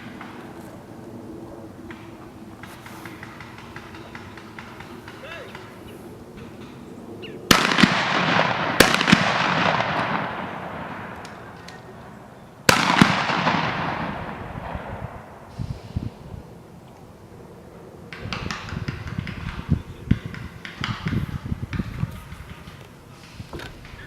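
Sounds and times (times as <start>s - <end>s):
sharp cracks: 0.0s - 1.0s, 1.7s - 6.8s, 7.4s - 15.5s
shotgun blasts with echo: 7.5s - 12.0s, 12.7s - 15.6s.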